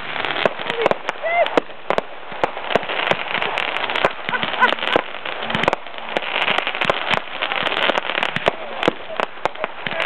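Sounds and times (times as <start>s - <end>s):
fireworks crackling and popping: 0.0s - 10.0s.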